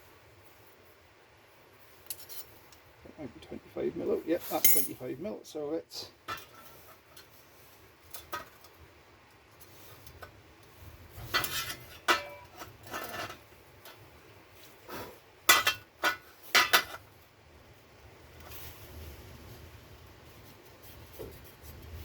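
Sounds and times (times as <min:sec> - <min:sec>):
metal tools clinking on workbench: 0:04.6 - 0:05.0.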